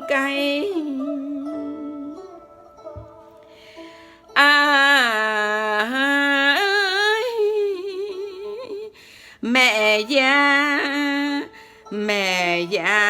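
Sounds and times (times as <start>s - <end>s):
instrumental backing music: 0.0s - 6.8s
person singing wordless notes: 0.0s - 13.0s.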